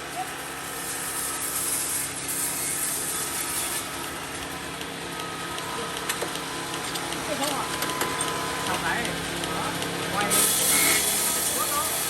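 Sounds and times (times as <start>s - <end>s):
saw motor hum: 0.3s - 12.0s
sawmill saw cutting wood: 0.5s - 4.1s, 9.9s - 12.0s.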